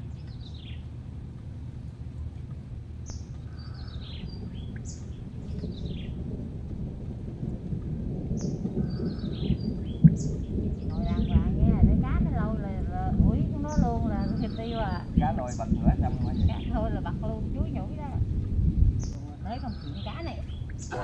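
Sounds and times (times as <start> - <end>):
birds chirping: 0.0 - 1.0, 1.9 - 21.0
low rumble: 0.0 - 21.0.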